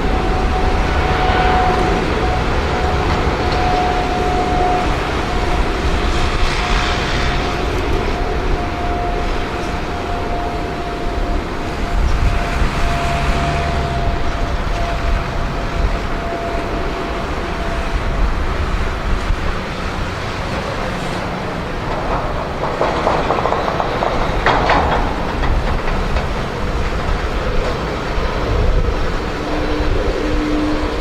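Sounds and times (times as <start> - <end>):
jet engines rumbling on takeoff: 0.0 - 31.0
clicking and rattling: 20.5 - 29.2.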